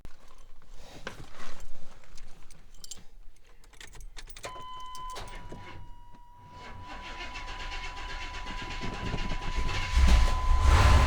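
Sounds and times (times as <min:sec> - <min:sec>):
keys jangling: 0:00.1 - 0:06.1.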